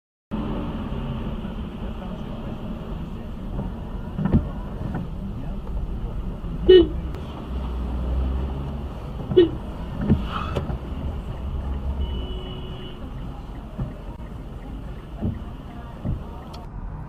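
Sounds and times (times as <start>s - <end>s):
car driving rumble: 0.3s - 17.0s.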